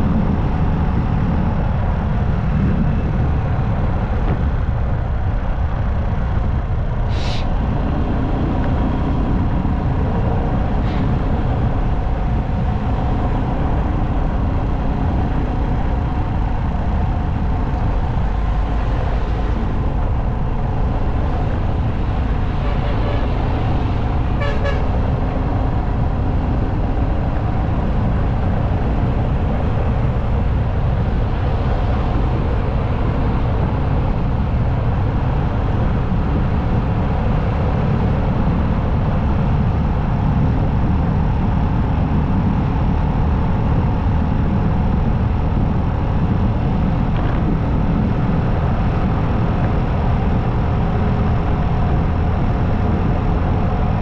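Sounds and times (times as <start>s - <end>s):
motorcycle riding: 0.0s - 54.0s
short horn toot: 24.4s - 24.9s.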